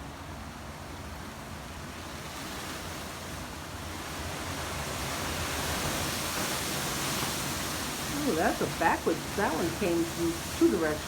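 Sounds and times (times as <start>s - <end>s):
hurricane wind gusting: 5.0s - 11.0s.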